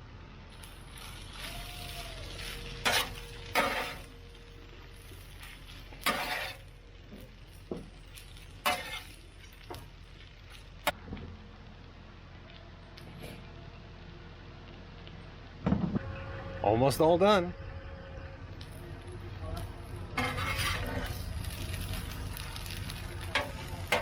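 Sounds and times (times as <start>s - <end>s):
food sizzling on a griddle: 0.5s - 11.0s, 19.8s - 24.0s
utensil scraping griddle: 0.6s - 11.0s, 19.7s - 24.0s.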